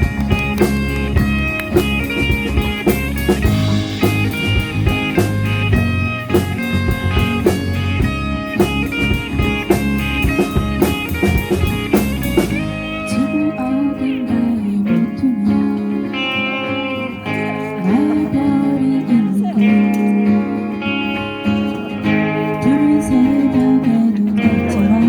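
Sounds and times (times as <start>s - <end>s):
steady drum beat: 0.0s - 12.9s
bass guitar: 0.0s - 25.0s
electric guitar: 0.0s - 25.0s.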